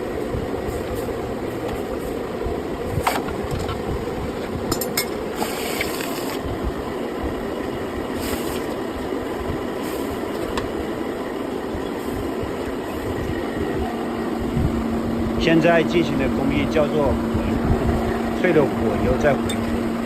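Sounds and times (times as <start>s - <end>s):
steady workshop drone: 0.0s - 20.0s
hissing bursts of quenching metal: 5.3s - 6.4s, 8.1s - 8.8s, 9.7s - 10.3s.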